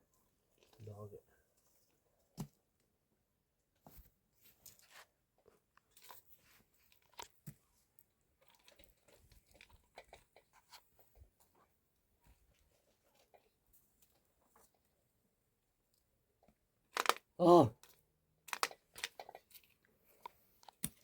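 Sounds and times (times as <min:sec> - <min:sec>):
person chewing food: 0:08.4 - 0:10.6.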